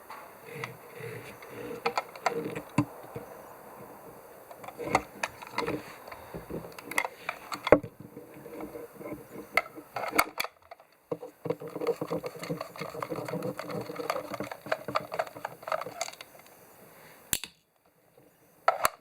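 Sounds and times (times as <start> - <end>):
clicks and taps of small parts: 9.4 - 16.5.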